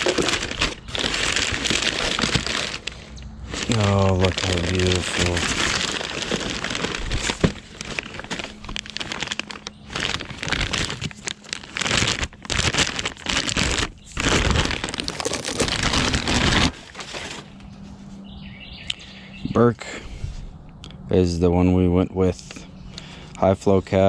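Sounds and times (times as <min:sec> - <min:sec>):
packaging crinkling and rustling: 0:00.0 - 0:17.8.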